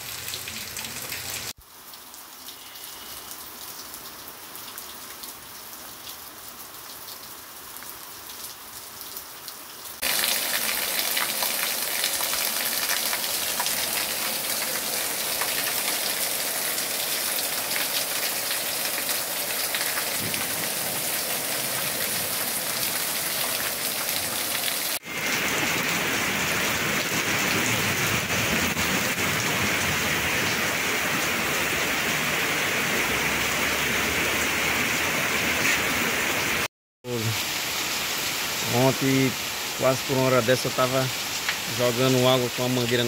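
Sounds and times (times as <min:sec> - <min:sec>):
rain hissing: 0:00.0 - 0:05.2, 0:10.0 - 0:34.2
heavy rain pouring on a roof: 0:00.0 - 0:43.0.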